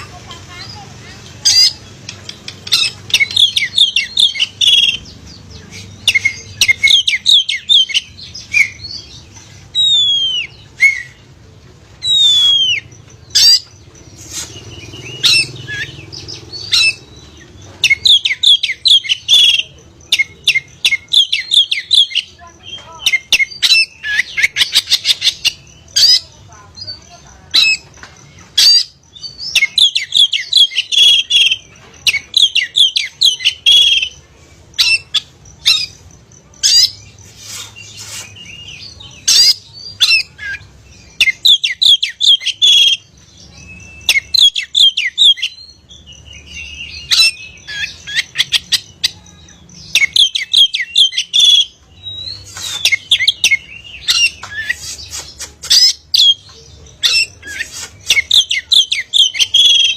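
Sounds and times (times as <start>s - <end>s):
magpie-robin singing: 0.0s - 59.9s.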